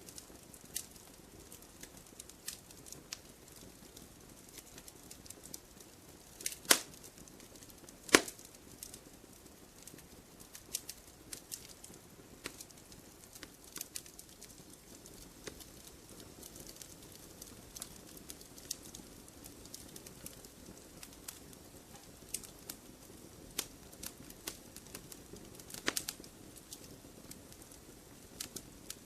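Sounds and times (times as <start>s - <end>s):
campfire crackling and popping: 0.0s - 29.0s
low steady hiss: 0.0s - 29.0s.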